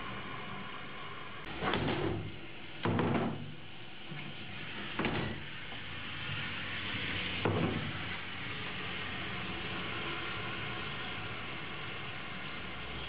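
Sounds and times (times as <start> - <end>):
heavy rain hissing: 3.6 - 13.0.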